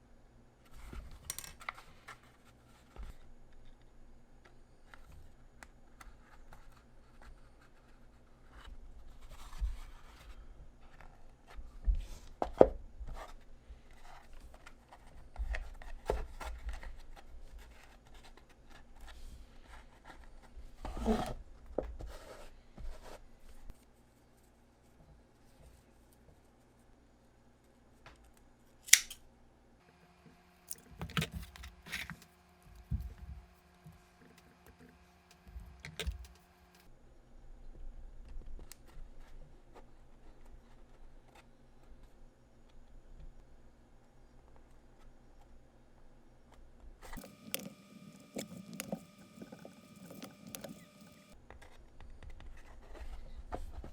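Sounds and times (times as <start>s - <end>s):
faint steady hum: 0.0s - 53.4s
scissors snipping: 28.8s - 29.2s.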